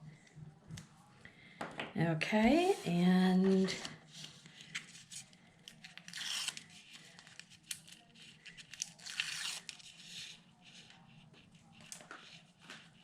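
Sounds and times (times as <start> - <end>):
paper clicks and rustles: 3.4 - 11.0, 11.6 - 13.0.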